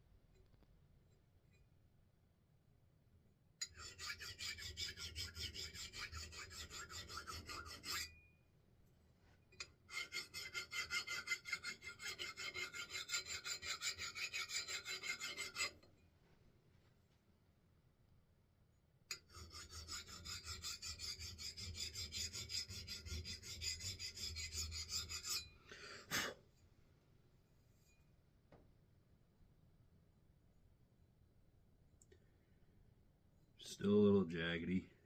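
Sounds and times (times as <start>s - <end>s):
file rasping on steel: 3.6s - 8.2s, 9.6s - 15.9s, 19.1s - 26.4s.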